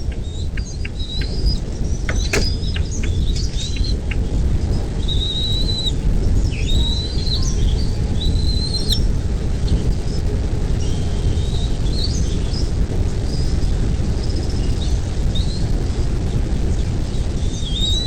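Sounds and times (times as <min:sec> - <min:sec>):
whistled bird notes: 0:00.0 - 0:09.1, 0:17.5 - 0:18.0
birds chirping: 0:00.0 - 0:15.8
steady low rumble: 0:00.0 - 0:18.0.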